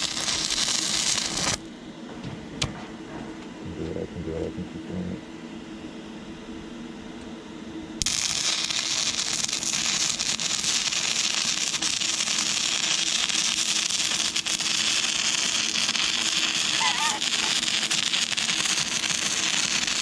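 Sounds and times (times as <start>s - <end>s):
welding arc crackling and hissing: 0.0s - 1.7s, 8.0s - 20.0s.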